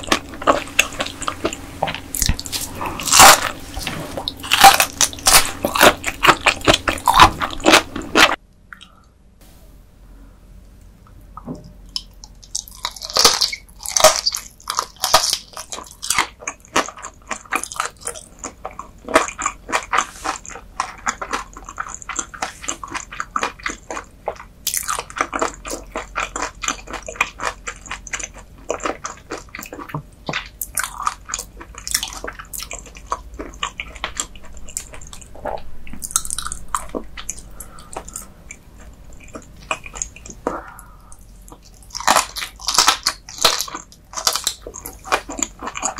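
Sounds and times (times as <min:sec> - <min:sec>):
crunchy chewing of raw fish: 0:00.0 - 0:09.0, 0:11.9 - 0:45.9.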